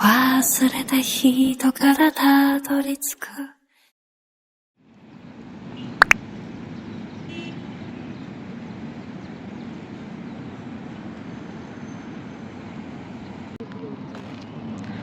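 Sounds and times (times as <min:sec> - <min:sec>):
low outdoor traffic rumble: 0:04.8 - 0:15.0.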